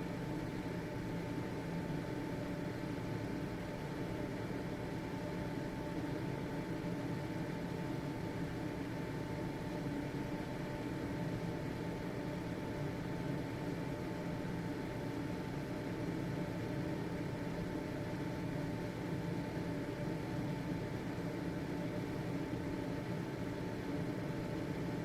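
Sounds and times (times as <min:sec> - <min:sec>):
faint motor whine: 0:00.0 - 0:25.0
ventilation fan running: 0:00.0 - 0:25.0.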